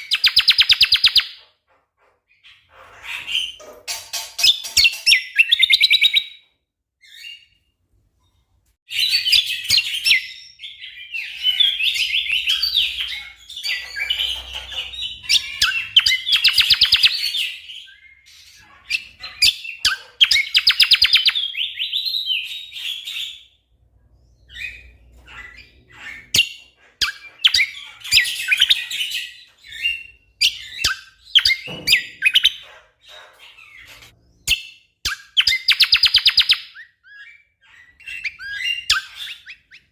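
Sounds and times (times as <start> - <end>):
songbird rapid chirping: 0.0 - 3.7, 4.3 - 39.9.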